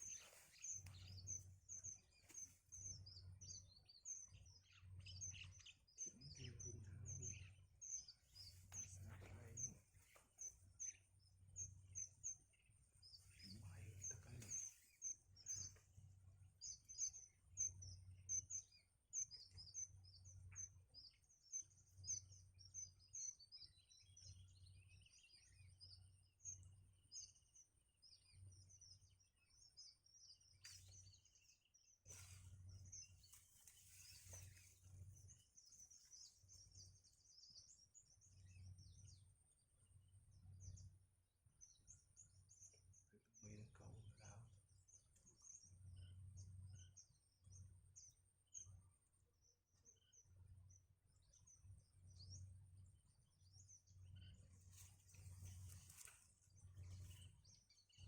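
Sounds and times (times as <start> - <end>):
nestling birds chirping: 0.0 - 58.0
faint low rumbling: 6.2 - 18.8.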